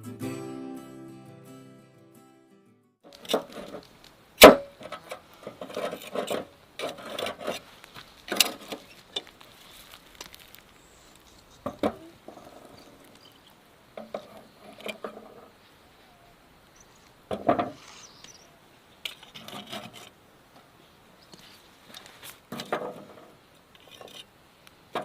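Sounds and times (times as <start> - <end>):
utensils scraping dishes: 4.8 - 7.7, 14.0 - 15.4.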